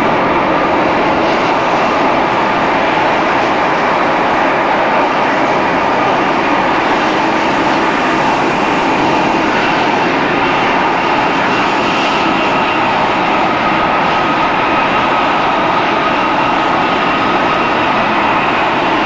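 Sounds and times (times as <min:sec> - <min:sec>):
jet engines and rushing air: 0:00.0 - 0:19.0.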